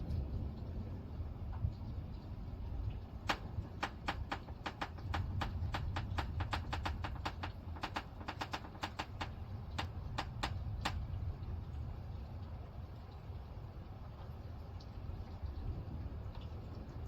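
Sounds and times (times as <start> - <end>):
raindrops ticking on hard surface: 0.0 - 17.0.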